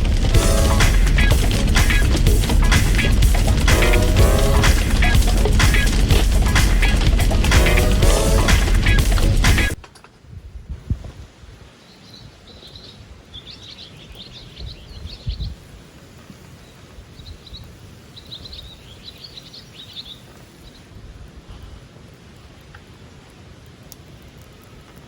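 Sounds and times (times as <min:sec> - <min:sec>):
low background rumble: 0:00.0 - 0:09.8.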